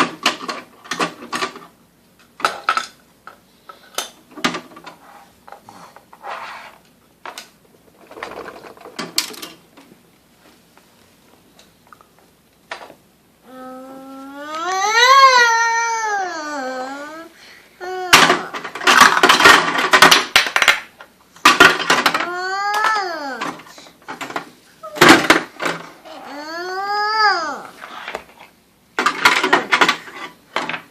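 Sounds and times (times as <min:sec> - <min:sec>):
small hard objects clattering: 0:18.6 - 0:22.2.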